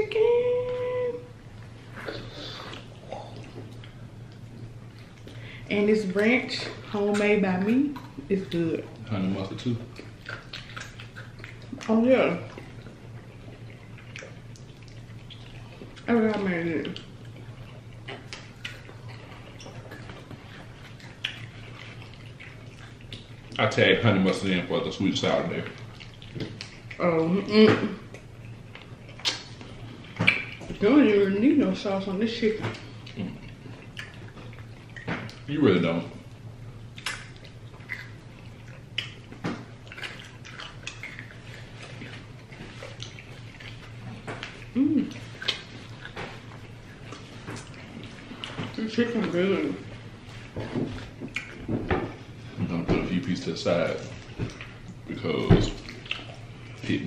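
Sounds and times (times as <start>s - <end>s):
low steady hum: 0.0s - 57.0s
person chewing crunchy food: 16.9s - 23.6s, 28.0s - 30.8s, 36.2s - 48.8s
wet mouth smacks: 29.1s - 30.7s, 36.9s - 42.2s, 51.3s - 51.6s.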